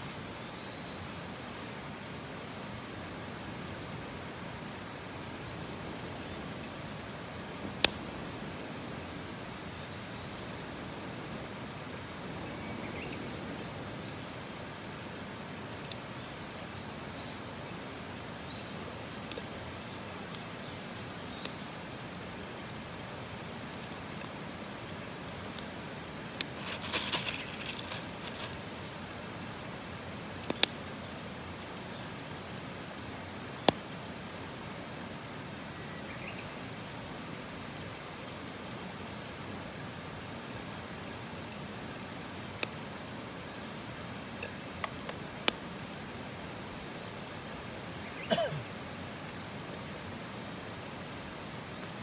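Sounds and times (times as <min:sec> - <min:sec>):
campfire hissing and popping: 0:00.0 - 0:52.0
faint bird chirp: 0:00.3 - 0:01.3, 0:12.3 - 0:14.2.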